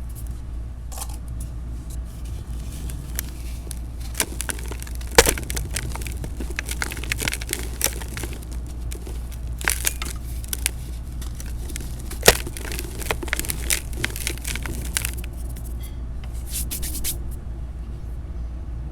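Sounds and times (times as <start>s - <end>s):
cement crunching and crackling: 2.0s - 15.8s.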